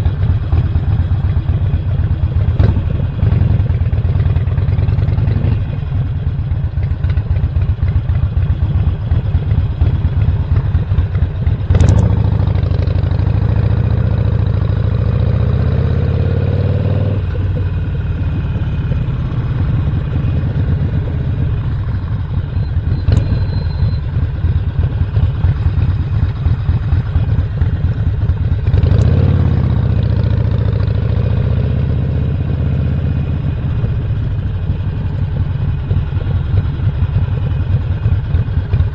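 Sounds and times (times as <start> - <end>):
motorcycle engine running: 0.0 - 38.9
sharp click: 11.8 - 12.2, 23.1 - 23.5.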